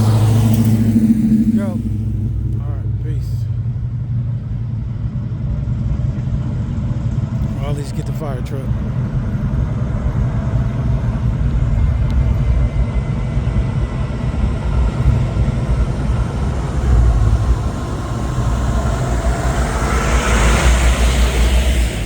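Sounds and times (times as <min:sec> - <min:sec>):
vehicle passing by: 0:00.0 - 0:04.7, 0:14.1 - 0:22.0
vehicle engine running: 0:00.0 - 0:22.0.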